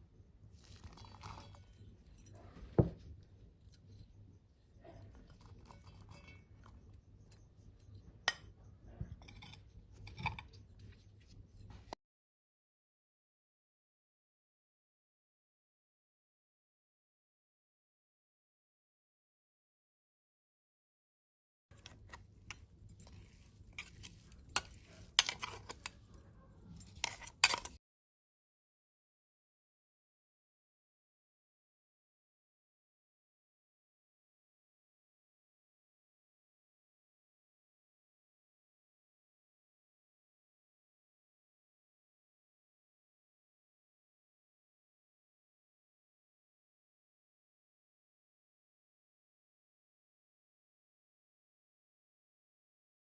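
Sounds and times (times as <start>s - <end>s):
utensils clinking and scraping: 4.8s - 6.9s, 8.3s - 10.9s, 21.8s - 27.8s
utensils clinking against dish: 26.8s - 27.8s.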